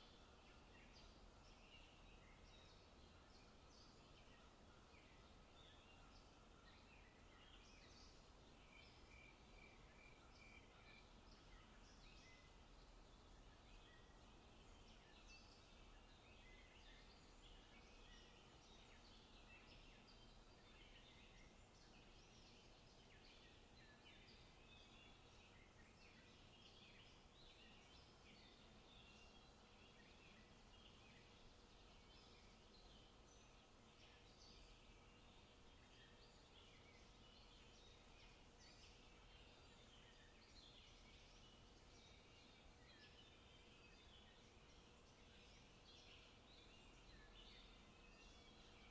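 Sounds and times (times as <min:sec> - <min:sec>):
low background hiss: 0:00.0 - 0:48.9
small birds chirping and trilling: 0:00.0 - 0:48.9.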